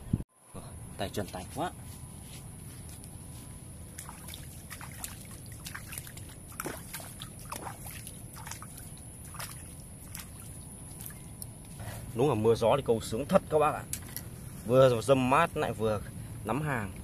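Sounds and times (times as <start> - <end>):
small splashes and ticks: 3.9 - 11.8
water sloshing and dripping: 3.9 - 11.8.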